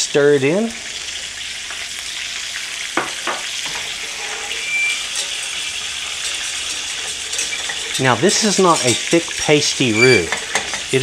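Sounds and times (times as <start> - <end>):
steak sizzling in oil: 0.0 - 11.0
whisk stirring in saucepan: 3.7 - 11.0.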